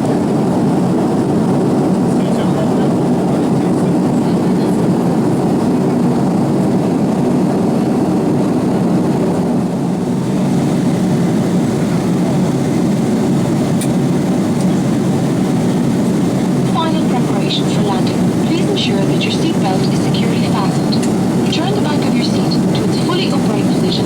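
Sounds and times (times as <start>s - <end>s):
airflow over fuselage: 0.0s - 24.0s
airliner cabin engine rumble: 0.0s - 24.0s.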